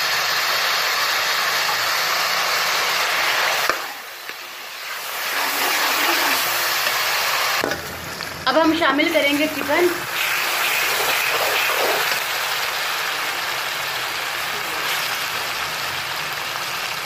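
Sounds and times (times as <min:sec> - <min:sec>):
onions and spices sizzling in pan: 0:00.0 - 0:17.0.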